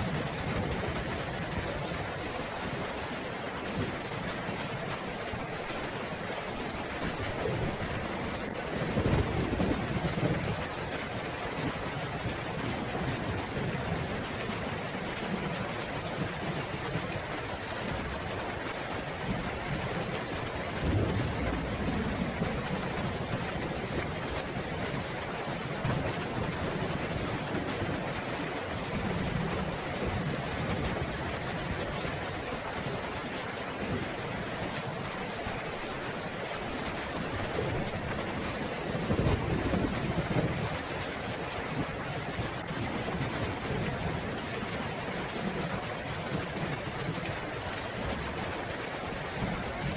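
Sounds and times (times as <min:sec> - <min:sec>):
steady rain falling: 0:00.0 - 0:49.9
low rumble of thunder: 0:07.0 - 0:17.2, 0:19.2 - 0:31.8.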